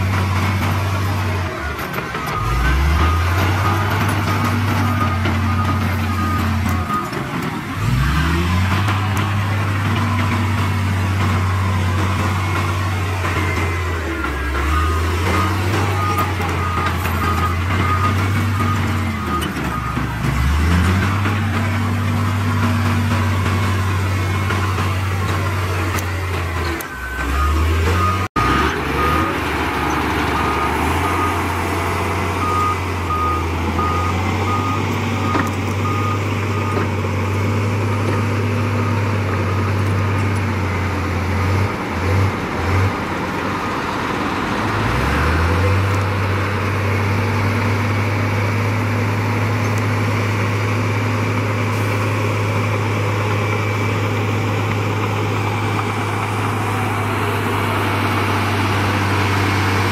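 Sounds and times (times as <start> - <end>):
diesel earthmoving machinery drone: 0.0 - 59.9
reversing alarm beeping: 0.3 - 39.9.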